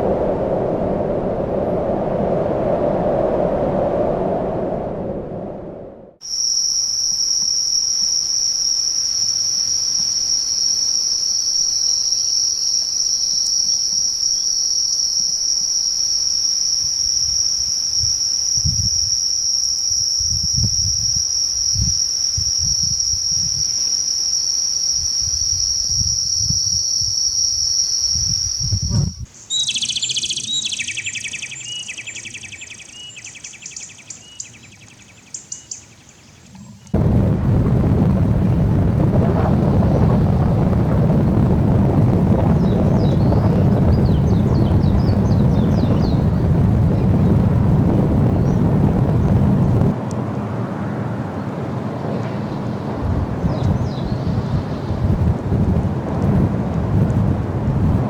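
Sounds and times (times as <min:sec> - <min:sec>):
low rumbles: 0:00.0 - 0:06.2, 0:36.6 - 0:58.0
high-pitched insect trill: 0:06.2 - 0:34.0.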